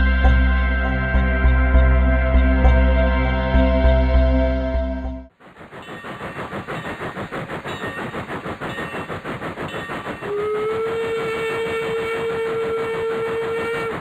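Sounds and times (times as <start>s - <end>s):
train running rhythmically: 5.3s - 14.0s
steady train whistle: 10.1s - 14.0s.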